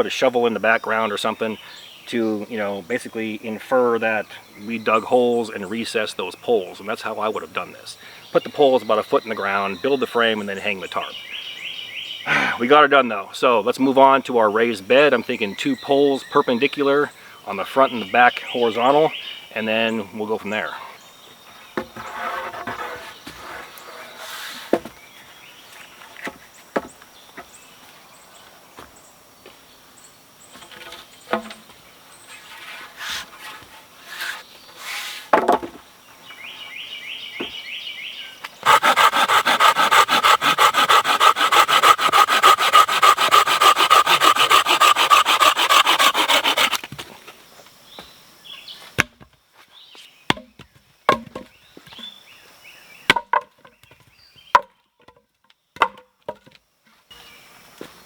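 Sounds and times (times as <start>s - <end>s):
knocks and clicks of wood: 35.3s - 35.8s, 55.8s - 56.6s
hand saw cutting wood: 38.6s - 46.9s.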